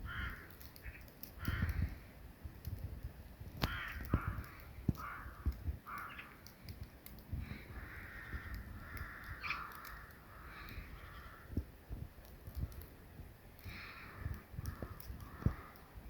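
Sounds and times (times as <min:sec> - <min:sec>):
bird calls: 0:03.7 - 0:06.6, 0:07.4 - 0:11.6.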